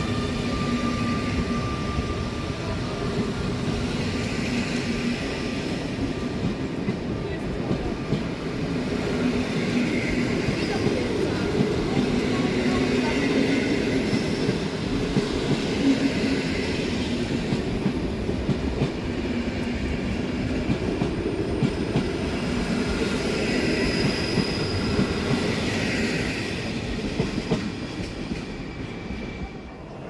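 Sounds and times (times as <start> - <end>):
train wheels rumbling on rails: 0.0 - 30.0
faint high wheel squeal: 23.6 - 25.3.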